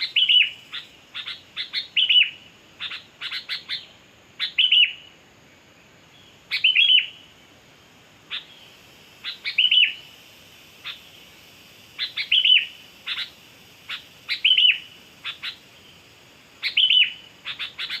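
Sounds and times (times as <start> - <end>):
bird calling chips and whistles: 12.0 - 13.3, 13.9 - 15.6.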